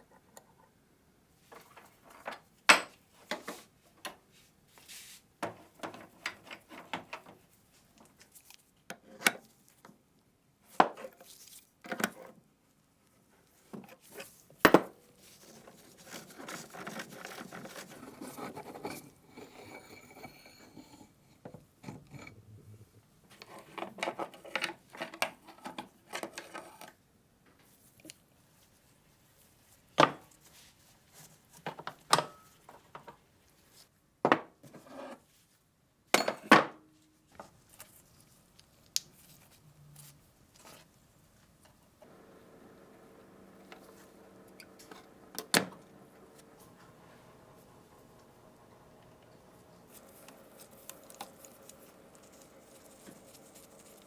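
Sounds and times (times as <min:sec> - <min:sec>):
rubbing or scraping: 0:04.8 - 0:05.2, 0:15.1 - 0:19.9, 0:49.6 - 0:54.0.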